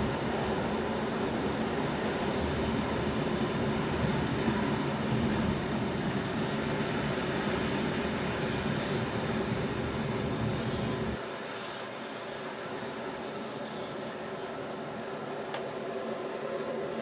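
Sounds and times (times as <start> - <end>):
train rumbling on track: 0.0 - 17.0
high wheel squeal: 8.9 - 15.0.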